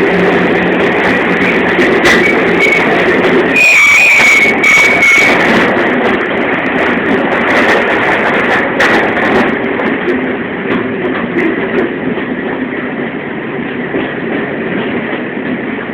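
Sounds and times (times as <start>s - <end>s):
train carriages rumbling on track: 0.0s - 15.9s
high wheel squeal: 0.1s - 5.8s.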